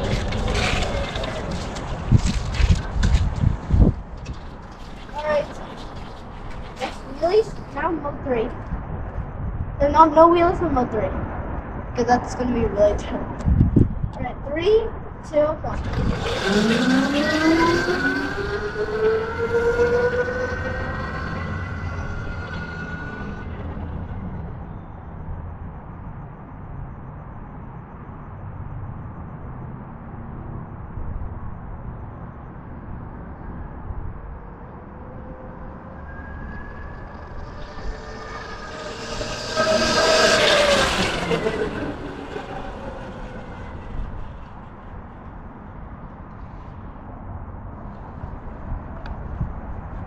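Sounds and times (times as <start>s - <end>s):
electric motor whining: 15.7s - 24.2s, 35.1s - 45.0s.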